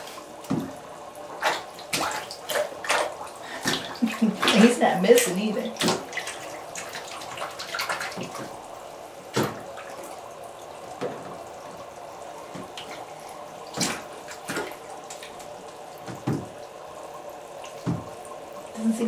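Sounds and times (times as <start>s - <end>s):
sharp water splashes: 0.0s - 8.7s, 9.3s - 11.2s, 12.5s - 16.7s
running water: 0.0s - 19.0s.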